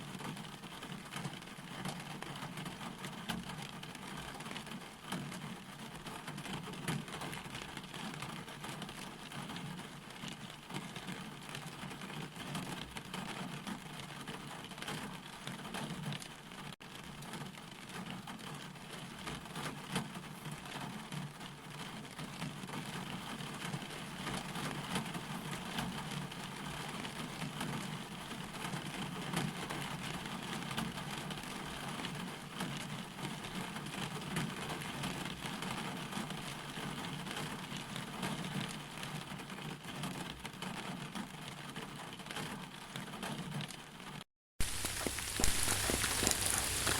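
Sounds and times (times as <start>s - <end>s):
raindrops striking a surface: 0.0s - 46.9s
rain hissing: 44.6s - 46.9s.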